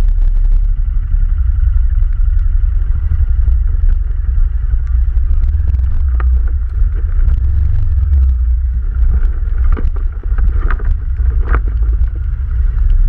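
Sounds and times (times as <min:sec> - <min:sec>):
atv engine rumbling: 0:00.0 - 0:13.0
wind buffeting microphone: 0:00.0 - 0:13.0.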